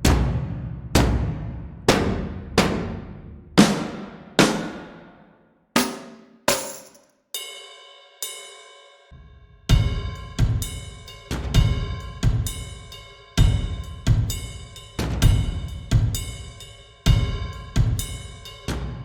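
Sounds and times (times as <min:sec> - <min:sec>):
short sharp percussion hits: 0:05.8 - 0:07.0
ringing metallic strikes: 0:05.8 - 0:07.7.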